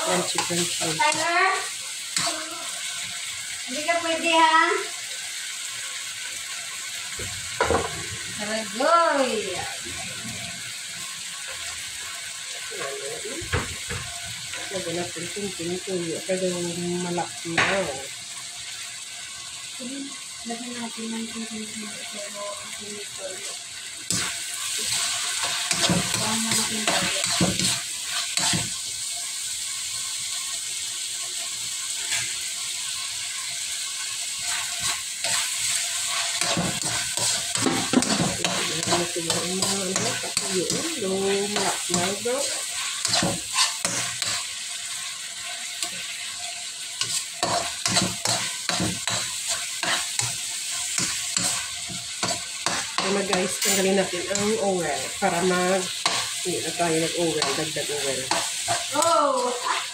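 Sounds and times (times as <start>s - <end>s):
chicken sizzling in oil: 0.0s - 59.9s
metal spatula scraping a pan: 24.0s - 28.8s, 32.0s - 32.4s, 34.3s - 59.9s.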